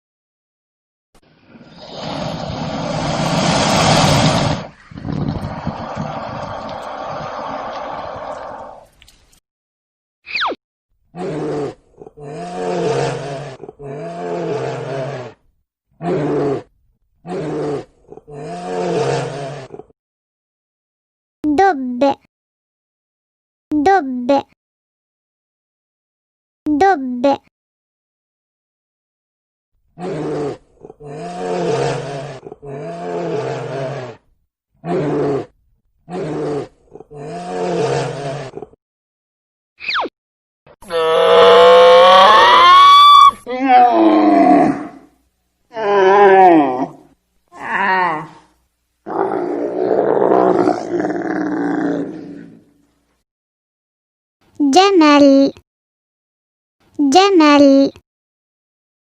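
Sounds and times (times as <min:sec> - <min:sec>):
large animal roaring: 0:03.4 - 0:08.9, 0:11.2 - 0:19.9, 0:30.0 - 0:38.8, 0:40.8 - 0:45.1, 0:45.7 - 0:48.5, 0:49.1 - 0:52.8.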